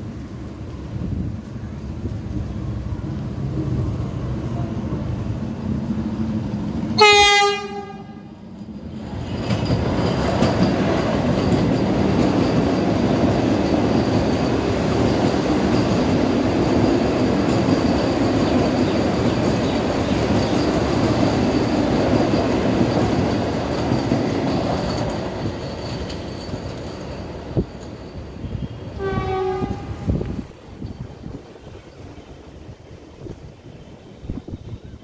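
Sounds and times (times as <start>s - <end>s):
train wheels rolling on rail: 0.0s - 35.0s
train horn blast: 7.0s - 8.4s, 28.5s - 30.2s.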